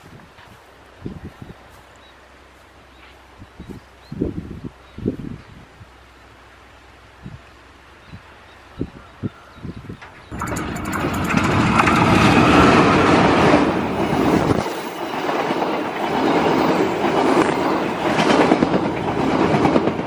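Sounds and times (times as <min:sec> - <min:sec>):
diesel locomotive engine: 0:10.0 - 0:20.0
train coaches rolling on rails: 0:10.0 - 0:20.0.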